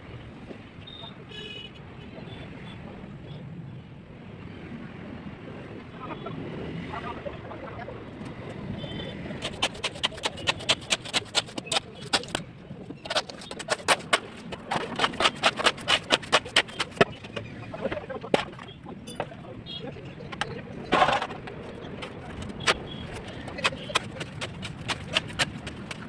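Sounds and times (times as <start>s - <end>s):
rapid sharp knocks: 9.4s - 17.4s, 20.4s - 26.0s.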